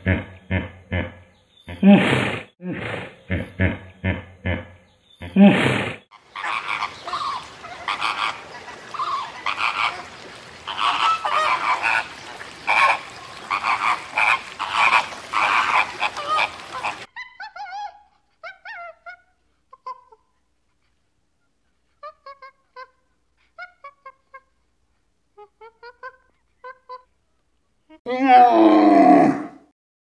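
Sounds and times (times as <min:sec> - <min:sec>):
thin warbling calls: 0:06.1 - 0:17.1
flamingos honking and chattering: 0:06.1 - 0:17.9.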